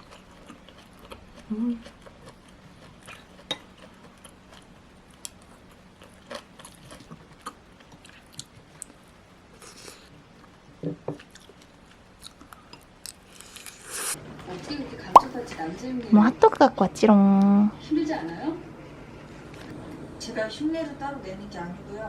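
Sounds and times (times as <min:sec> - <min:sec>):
person chewing food: 0:00.0 - 0:09.0, 0:11.1 - 0:13.8.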